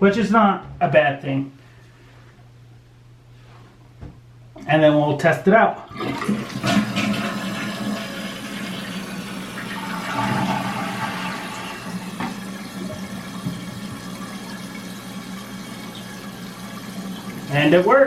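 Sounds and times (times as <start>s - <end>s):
toilet flushing: 5.8s - 18.0s
toilet tank refilling hiss: 5.9s - 17.7s.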